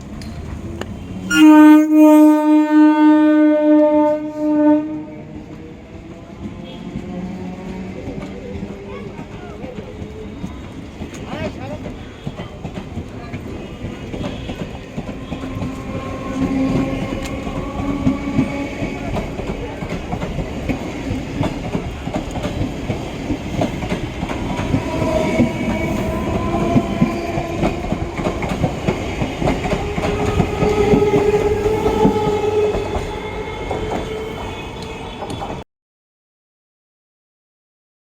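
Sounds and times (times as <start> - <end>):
long whining train tones: 0.0 - 35.6
train wheels clattering over rail joints: 7.0 - 35.6.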